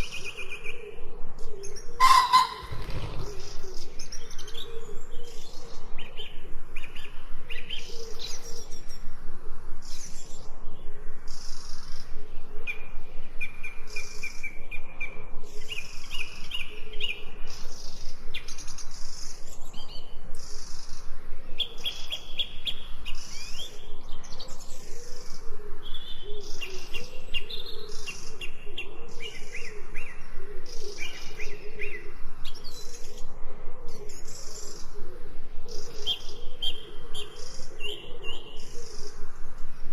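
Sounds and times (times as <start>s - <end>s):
songbirds chirping and trilling: 0.0s - 39.9s
low wavering bird call: 2.0s - 3.1s.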